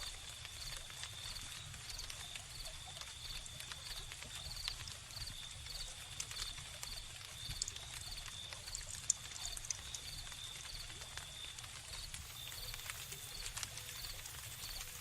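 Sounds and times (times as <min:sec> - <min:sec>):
wood fire crackling: 0:00.0 - 0:15.0
crickets chirping: 0:11.4 - 0:15.0.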